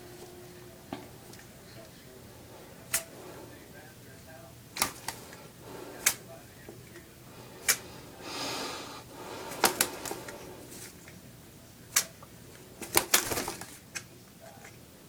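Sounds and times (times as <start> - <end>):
parrot splashing in water: 9.2 - 11.2, 12.8 - 14.0.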